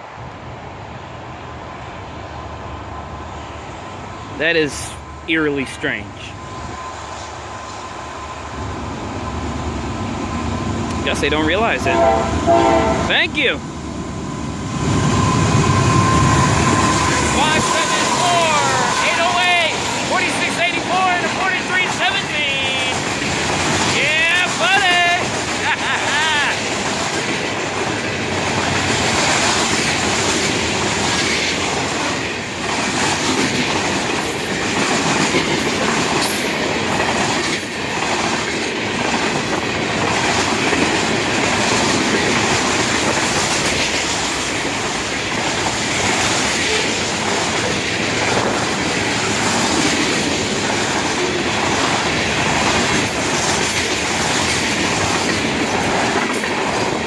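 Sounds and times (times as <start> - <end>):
train wheels rumbling on rail: 0.0 - 57.0
wheels clickety-clack over joints: 19.5 - 57.0.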